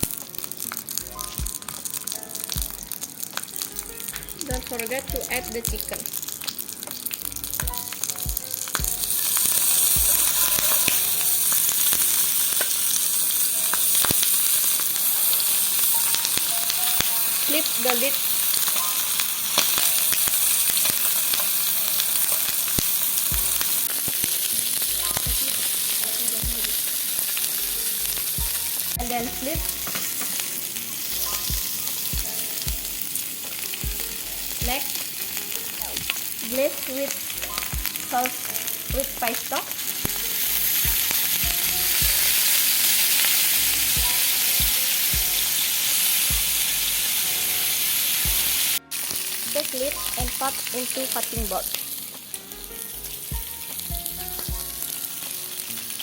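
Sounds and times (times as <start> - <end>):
chicken sizzling in hot oil: 0.0 - 56.0
soft low thumps: 1.2 - 1.6, 2.6 - 3.0, 3.8 - 6.1, 7.4 - 9.1, 28.4 - 29.9, 31.5 - 33.0, 40.8 - 42.3, 46.3 - 46.6.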